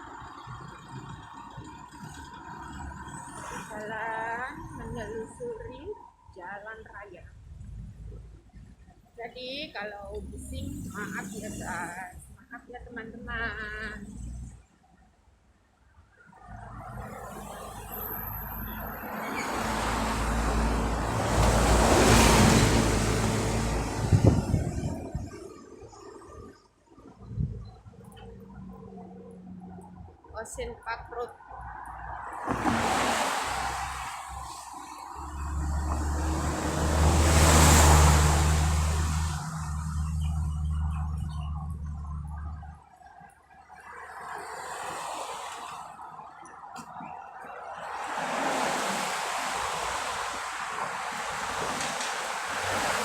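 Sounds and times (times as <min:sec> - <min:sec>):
low engine hum: 0:16.5 - 0:25.6, 0:32.5 - 0:42.8
vehicle passing by: 0:16.6 - 0:25.4, 0:32.4 - 0:42.5, 0:47.9 - 0:53.0.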